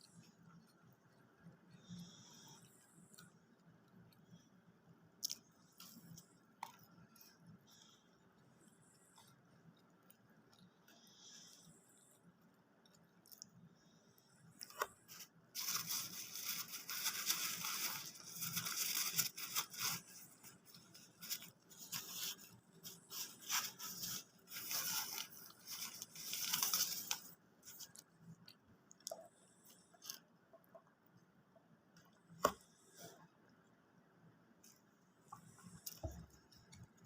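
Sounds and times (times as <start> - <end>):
close crinkling and crunching: 5.1 - 7.9, 14.5 - 30.3.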